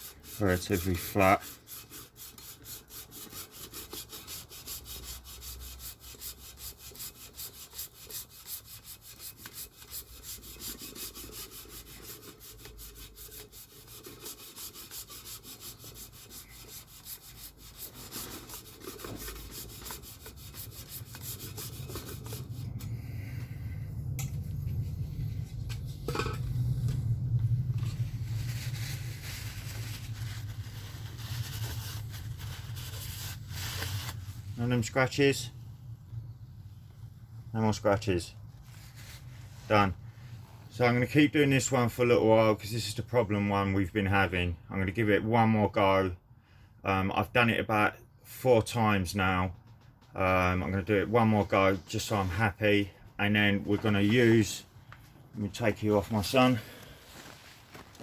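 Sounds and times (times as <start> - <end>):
sandpaper rubbing on metal: 0.0 - 22.8, 27.9 - 35.2
low rumble: 22.0 - 30.6.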